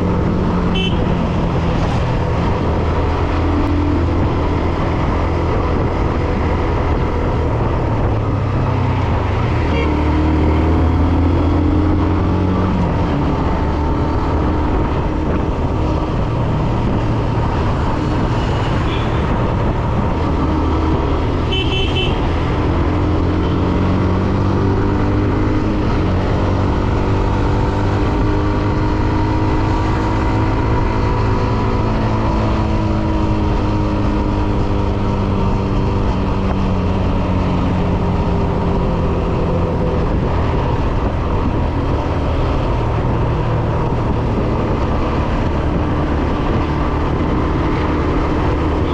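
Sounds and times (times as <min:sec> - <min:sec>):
road and wind noise: 0:00.0 - 0:48.9
vehicle horn toot: 0:00.7 - 0:01.2, 0:21.5 - 0:22.3.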